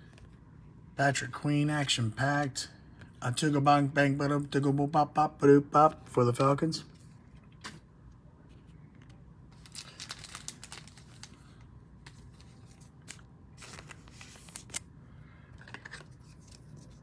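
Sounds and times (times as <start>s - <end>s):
papery rustles of cards: 8.5s - 14.9s, 15.5s - 17.0s.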